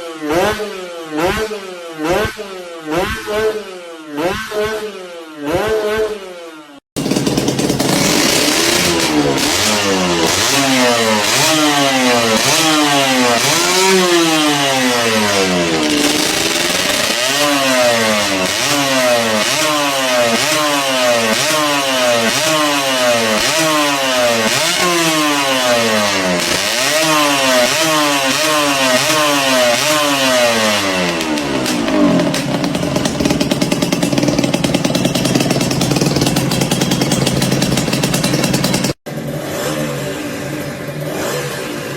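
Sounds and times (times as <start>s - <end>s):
two-stroke engine revving: 0.0s - 41.9s
engine idling: 7.0s - 26.8s, 29.8s - 39.0s.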